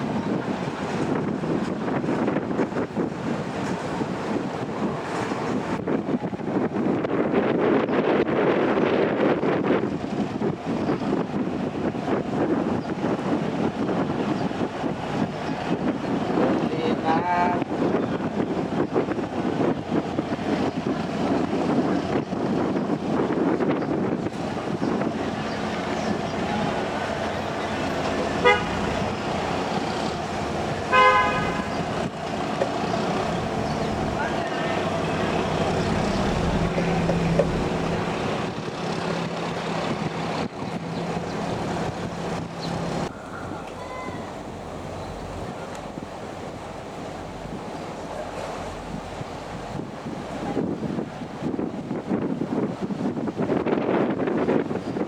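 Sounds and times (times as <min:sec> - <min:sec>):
ferry engine noise: 0:00.0 - 0:55.0
water: 0:00.0 - 0:55.0
wind buffeting microphone: 0:00.0 - 0:55.0
ship horn toots: 0:26.0 - 0:38.5.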